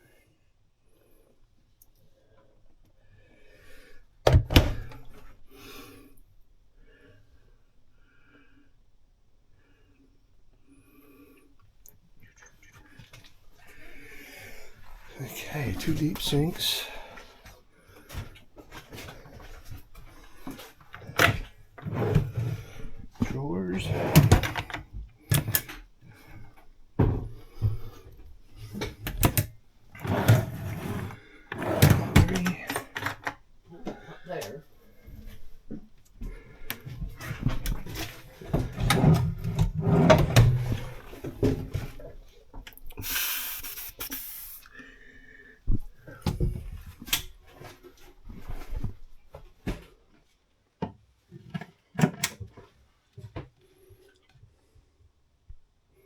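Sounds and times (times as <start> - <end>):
drawer sliding scrape: 21.2 - 23.0, 23.7 - 25.7, 28.7 - 33.2, 37.2 - 42.0
drawers and doors knocking: 30.0 - 32.6
wooden drawers and doors knocking: 31.6 - 33.2.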